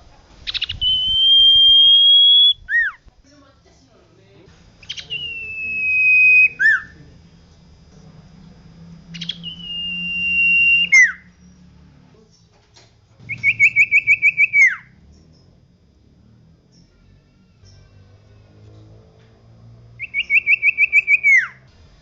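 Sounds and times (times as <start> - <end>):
bird singing whistles: 0.5 - 3.0, 4.8 - 7.0, 9.1 - 11.3, 13.2 - 14.9, 20.0 - 21.6.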